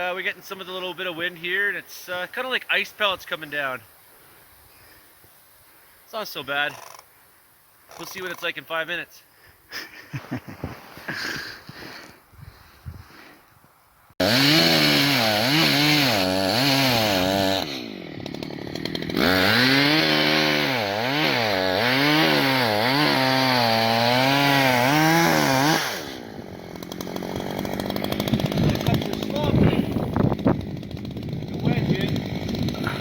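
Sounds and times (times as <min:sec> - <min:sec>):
chainsaw cutting wood: 0:14.2 - 0:33.0.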